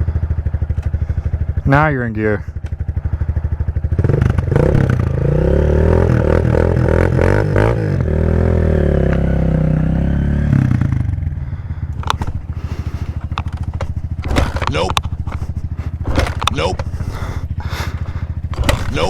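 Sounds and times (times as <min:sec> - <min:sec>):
dirt bike engine revving: 0:02.8 - 0:19.0
sharp clicks: 0:13.2 - 0:17.2.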